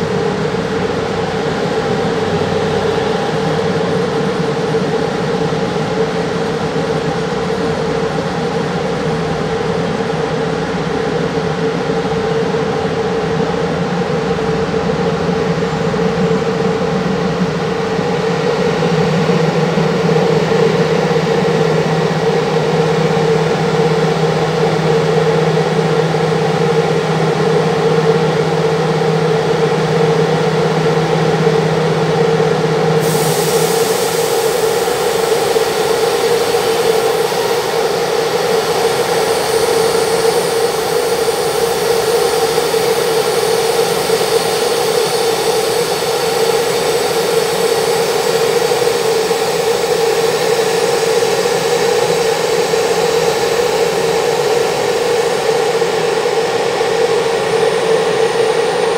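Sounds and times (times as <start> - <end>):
train hum and whine: 0.0 - 58.9
hiss with high whistle: 33.0 - 58.7.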